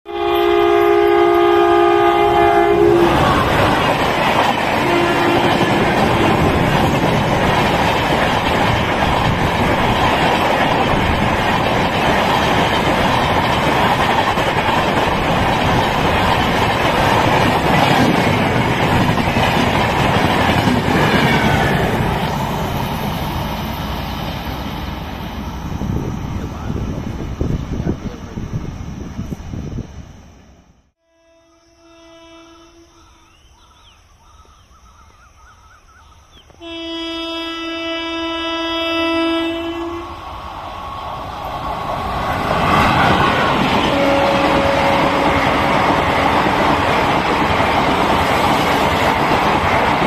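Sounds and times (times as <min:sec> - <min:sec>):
electric locomotive horn: 0:00.1 - 0:04.1, 0:04.7 - 0:06.6, 0:31.0 - 0:33.1, 0:36.6 - 0:40.2, 0:43.8 - 0:46.5
train wheels roaring on rails: 0:00.1 - 0:31.0, 0:32.5 - 0:50.0.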